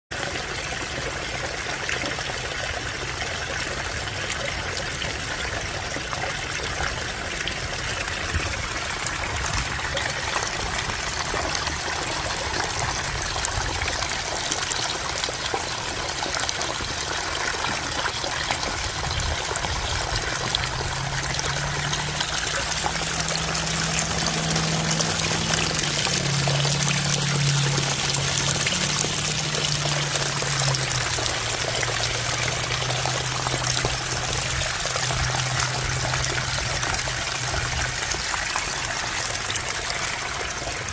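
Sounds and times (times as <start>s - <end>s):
waterfall rushing: 7.1s - 37.9s.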